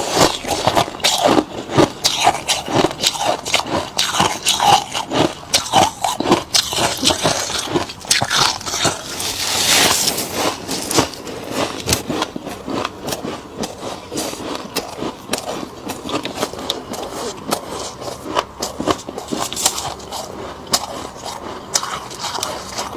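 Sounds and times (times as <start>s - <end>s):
frost being bitten and chewed: 0.0s - 22.9s
scraping frost: 6.7s - 12.0s.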